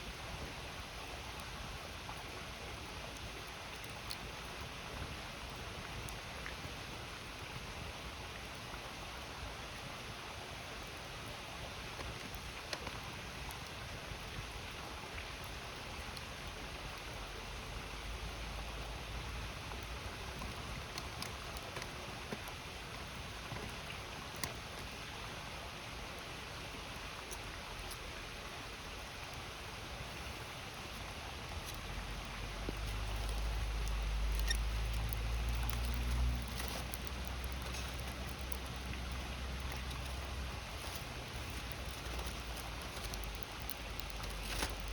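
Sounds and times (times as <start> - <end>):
campfire crackling and popping: 2.8 - 8.7, 10.8 - 25.3, 26.5 - 44.9
river rushing: 29.3 - 44.9.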